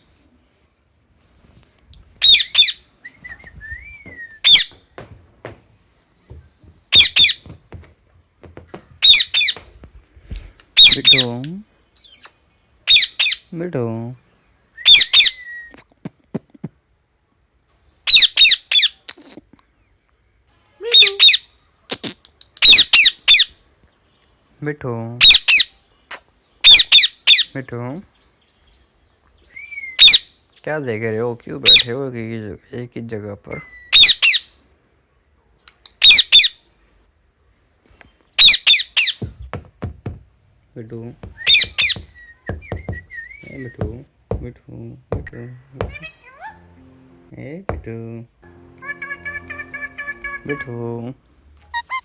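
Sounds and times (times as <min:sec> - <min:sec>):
parakeet squawking: 0:02.2 - 0:02.8, 0:09.0 - 0:09.6, 0:41.2 - 0:44.4, 0:45.2 - 0:47.9, 0:48.6 - 0:51.0.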